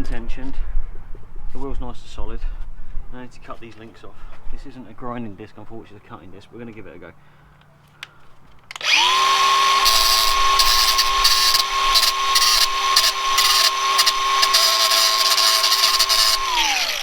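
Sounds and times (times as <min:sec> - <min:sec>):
angle grinder whining: 0:08.7 - 0:17.0
grinder cutting through steel: 0:08.8 - 0:17.0.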